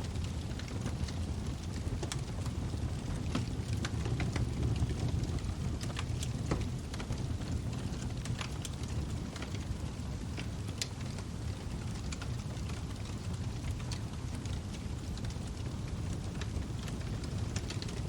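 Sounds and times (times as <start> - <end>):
burning wood crackling and popping: 0.0 - 18.0
low rumble of flames: 0.0 - 18.0.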